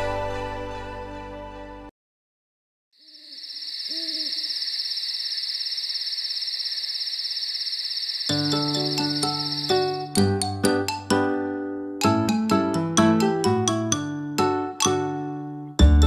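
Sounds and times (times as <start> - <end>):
music: 0.0 - 1.9, 8.3 - 16.0
owl hoots: 3.0 - 8.1
crickets chirring: 3.0 - 10.1.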